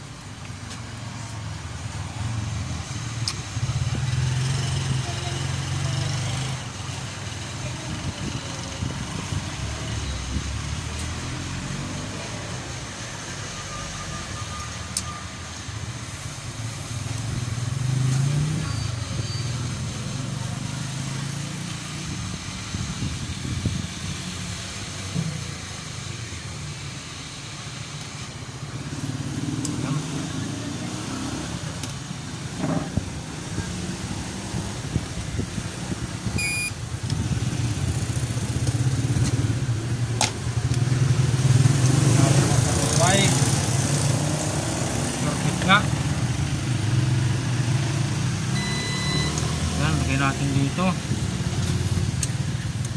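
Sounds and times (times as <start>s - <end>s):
vehicle engine rumbling: 0.0s - 52.9s
short high beep: 36.4s - 36.8s, 48.6s - 49.4s.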